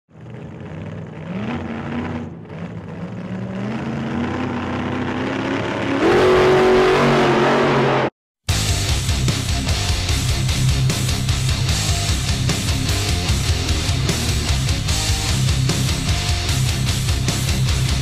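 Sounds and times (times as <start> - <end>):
car engine accelerating hard: 0.1 - 8.1.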